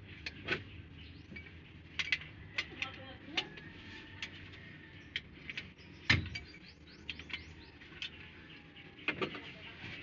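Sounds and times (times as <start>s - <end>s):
bird chirps: 0.3s - 1.6s, 4.9s - 9.9s.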